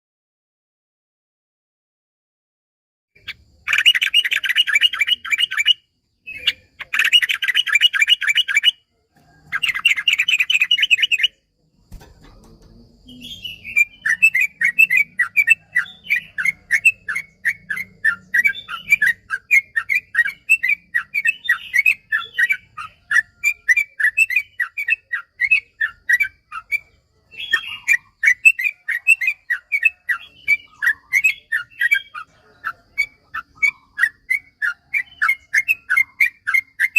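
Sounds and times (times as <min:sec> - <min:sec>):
bird song with chattering trill: 0:03.2 - 0:36.9.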